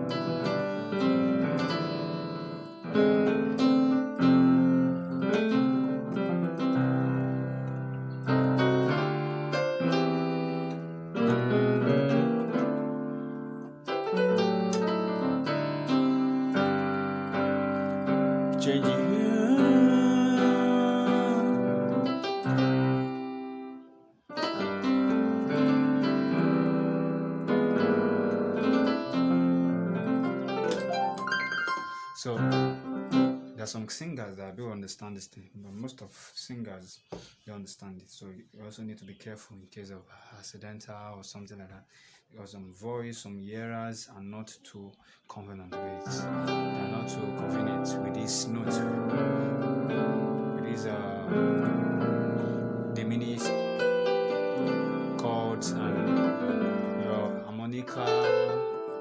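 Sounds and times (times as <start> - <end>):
keyboard playing gospel chords: 0.0 - 33.6, 45.8 - 59.0.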